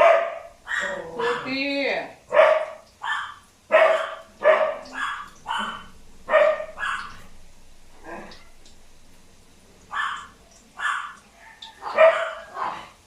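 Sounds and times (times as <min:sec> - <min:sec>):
dog barking: 0:00.0 - 0:01.6, 0:02.3 - 0:07.3, 0:09.9 - 0:13.0.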